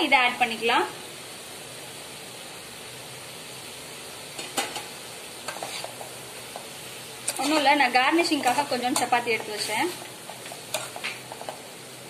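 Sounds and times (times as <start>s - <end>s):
food sizzling in a pan: 0.0s - 12.0s
steel spoon scraping pan: 4.4s - 11.6s.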